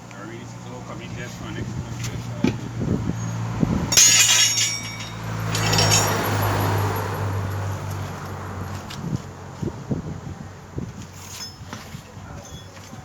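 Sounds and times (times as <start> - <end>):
metal tools clanking on wheel rim: 1.1 - 9.0, 11.0 - 13.0.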